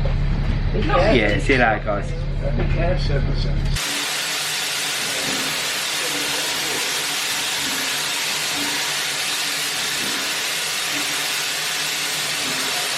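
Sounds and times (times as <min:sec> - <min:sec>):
steam locomotive venting steam: 0:03.8 - 0:12.9.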